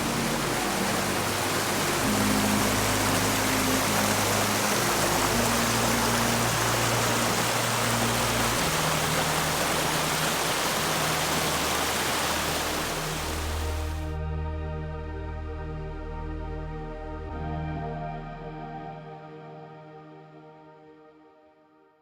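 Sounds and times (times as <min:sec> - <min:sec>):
stream water rushing: 0:00.0 - 0:14.1
slow low chords music: 0:00.0 - 0:21.4.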